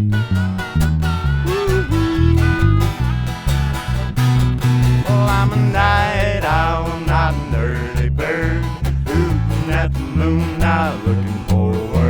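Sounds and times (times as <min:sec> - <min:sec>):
pulsing bass line: 0:00.0 - 0:12.0
strummed acoustic guitar: 0:00.0 - 0:12.0
melodic lead line: 0:00.1 - 0:05.7.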